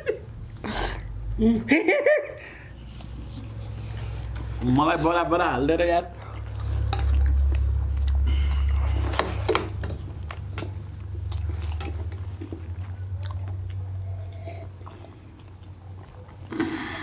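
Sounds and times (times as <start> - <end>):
chewing and wet mouth sounds: 2.9 - 5.4, 6.0 - 17.0.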